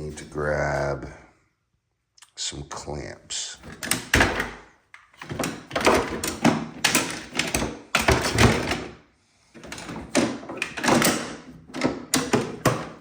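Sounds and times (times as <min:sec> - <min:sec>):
metal clamps clattering: 0:09.6 - 0:13.0.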